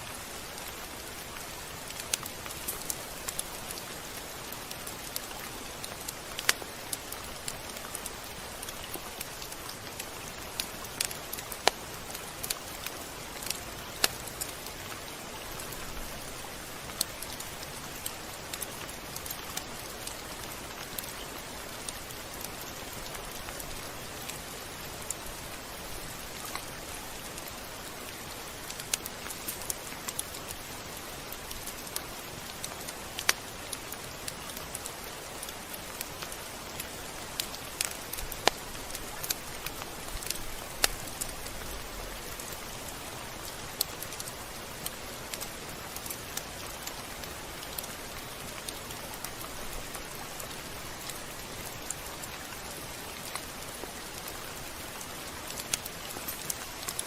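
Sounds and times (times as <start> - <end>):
rain hiss: 0.0 - 57.0.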